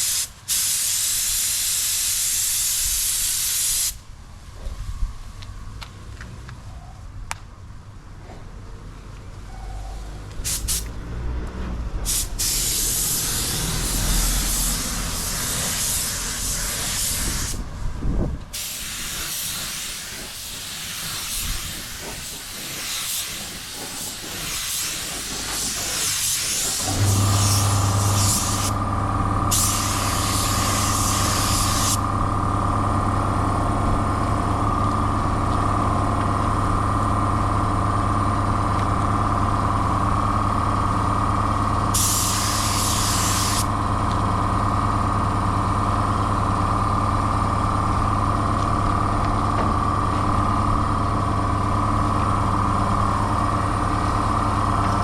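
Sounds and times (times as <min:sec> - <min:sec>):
spray gun hissing: 0:00.0 - 0:04.0, 0:10.4 - 0:10.9, 0:12.1 - 0:17.6, 0:18.6 - 0:28.8, 0:29.5 - 0:32.0, 0:42.0 - 0:43.7.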